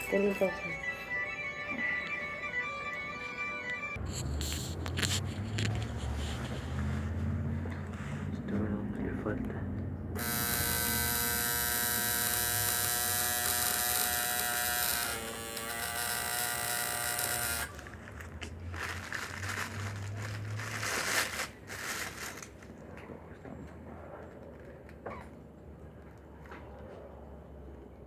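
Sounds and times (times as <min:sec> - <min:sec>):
rustling and crinkling: 0:04.0 - 0:08.4, 0:17.7 - 0:25.0
electric tattoo machine buzzing: 0:10.2 - 0:17.9.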